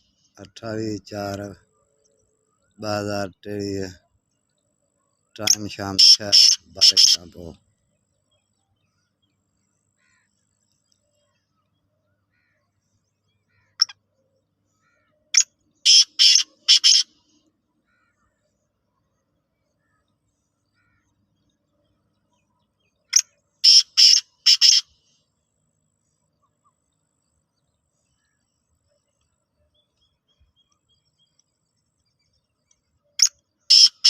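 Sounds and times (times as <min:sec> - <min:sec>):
bird short calls: 0:05.4 - 0:07.6, 0:11.1 - 0:14.0, 0:14.7 - 0:18.4, 0:23.1 - 0:25.1, 0:33.2 - 0:34.0.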